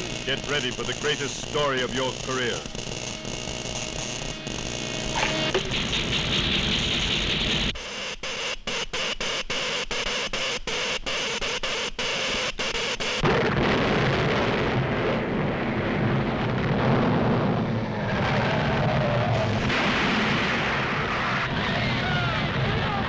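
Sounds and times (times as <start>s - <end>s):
heavy rumbling noise: 0.0s - 7.8s
pulsing hissing noise: 0.0s - 8.1s.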